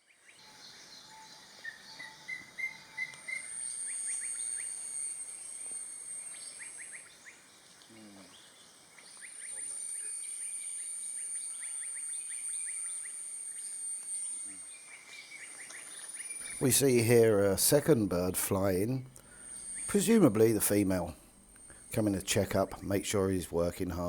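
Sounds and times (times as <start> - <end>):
repeated bird notes: 16.2 - 24.0.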